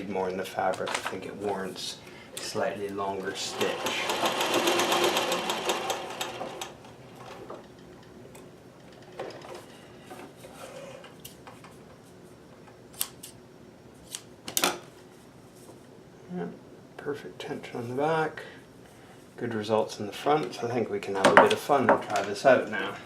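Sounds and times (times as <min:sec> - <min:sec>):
faint handling noises: 0:00.0 - 0:03.4
sewing machine stitching rapidly: 0:03.4 - 0:06.8.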